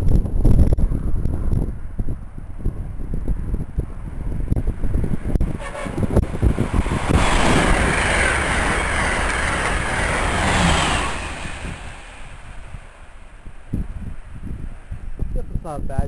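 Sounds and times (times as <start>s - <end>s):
wind buffeting microphone: 0.0s - 16.0s
train wheels rushing on rail: 4.2s - 15.1s.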